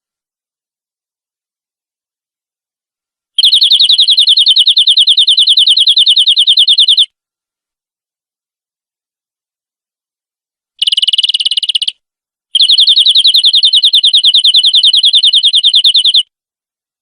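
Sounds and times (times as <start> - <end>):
canary trilling: 3.4 - 7.1, 10.8 - 11.9, 12.6 - 16.2.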